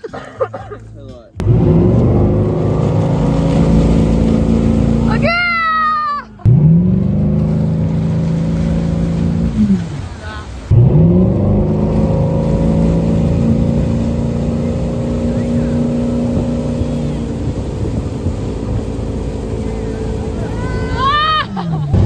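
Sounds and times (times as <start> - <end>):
motorboat engine running: 0.0 - 22.0
rushing water noise: 0.0 - 22.0.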